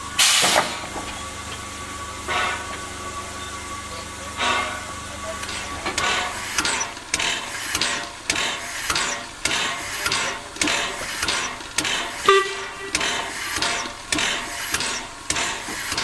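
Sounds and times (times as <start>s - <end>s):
steam locomotive exhaust chuffing: 0.0s - 16.0s
brief pitched tone: 12.3s - 13.0s.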